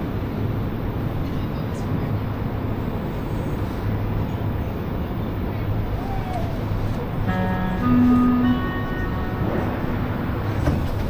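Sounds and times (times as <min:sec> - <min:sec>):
metro train rumble: 0:00.0 - 0:11.0
constant low hum: 0:02.8 - 0:11.0.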